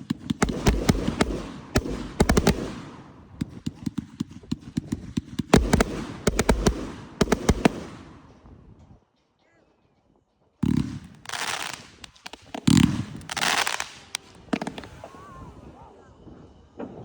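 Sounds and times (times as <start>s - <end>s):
fireworks cracking and banging: 0.0s - 8.4s, 10.6s - 15.7s
fireworks crackling: 0.0s - 8.4s, 10.6s - 15.7s.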